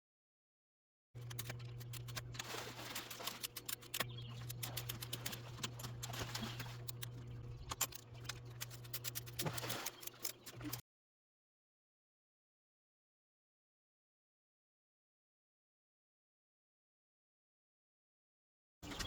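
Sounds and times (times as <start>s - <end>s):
hand tools clicking on bolts: 1.2s - 10.8s
steady low hum: 1.2s - 10.8s.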